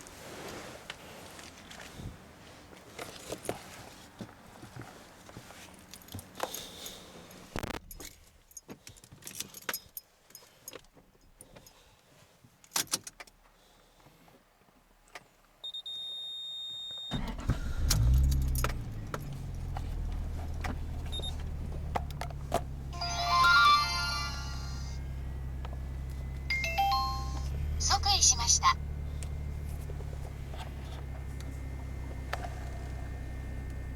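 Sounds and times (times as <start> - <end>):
car engine starting and idling: 17.1 - 33.9
short beep: 23.0 - 29.7
wavering high tones: 23.0 - 30.3.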